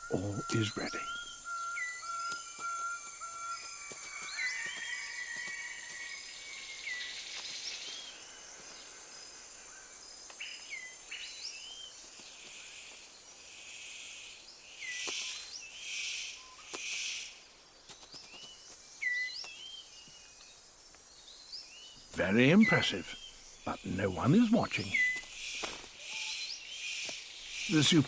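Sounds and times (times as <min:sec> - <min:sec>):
birds whistling: 0:00.0 - 0:08.3, 0:21.8 - 0:28.0
insect hum: 0:00.0 - 0:28.0.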